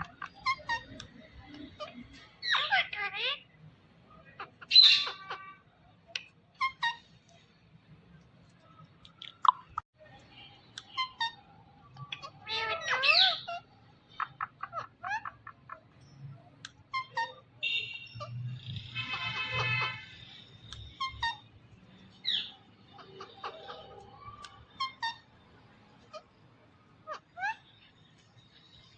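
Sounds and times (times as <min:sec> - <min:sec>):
parrot chirping and calling: 0:00.0 - 0:03.6, 0:04.2 - 0:05.6, 0:06.5 - 0:07.1, 0:10.8 - 0:21.5, 0:22.1 - 0:25.4, 0:27.0 - 0:27.9
parrot calls: 0:01.7 - 0:03.5, 0:11.0 - 0:15.8.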